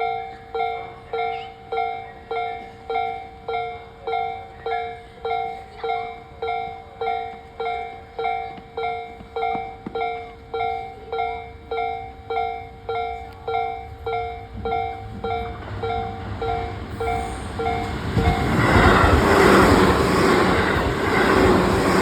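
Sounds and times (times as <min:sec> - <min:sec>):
level crossing alarm dinging: 0:11.8 - 0:22.0.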